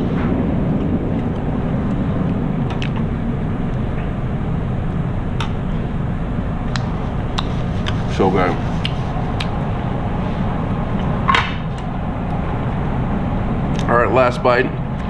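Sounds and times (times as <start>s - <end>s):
steady low rumble: 0.0s - 15.0s
person chewing: 6.7s - 9.6s
wet mouth clicks: 8.8s - 9.6s.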